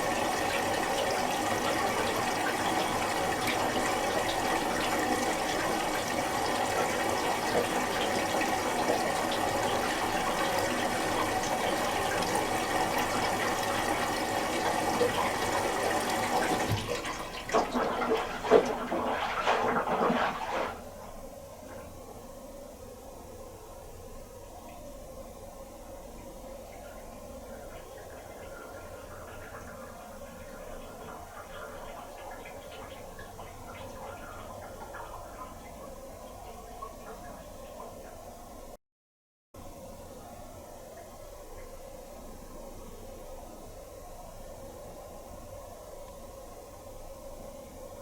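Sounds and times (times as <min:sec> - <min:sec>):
water splashing and sloshing: 0:00.0 - 0:21.2
water rushing into washing machine: 0:00.0 - 0:21.9, 0:27.5 - 0:38.0.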